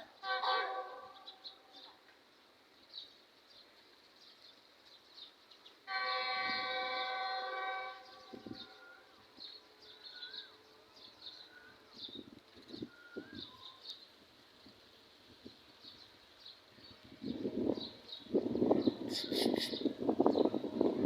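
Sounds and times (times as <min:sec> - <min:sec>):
faint birds chirping: 0:00.0 - 0:20.9
train horn blast: 0:00.2 - 0:01.9, 0:05.9 - 0:12.0.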